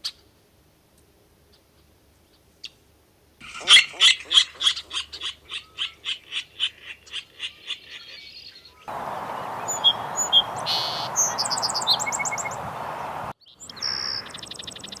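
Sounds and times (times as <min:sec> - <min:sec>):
bird repeated calls: 0:03.4 - 0:15.0
bird chirps and trill: 0:03.5 - 0:15.0
bird whistled note: 0:09.6 - 0:12.6.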